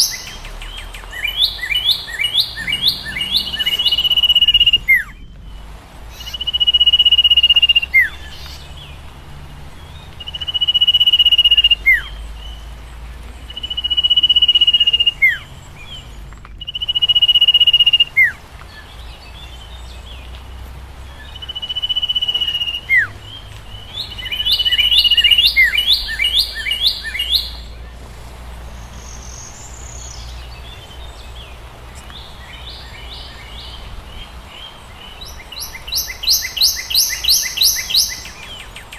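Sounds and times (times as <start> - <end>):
songbird whistling: 0.0 - 9.0, 9.9 - 12.8, 13.5 - 20.3, 21.1 - 27.9, 34.5 - 38.9.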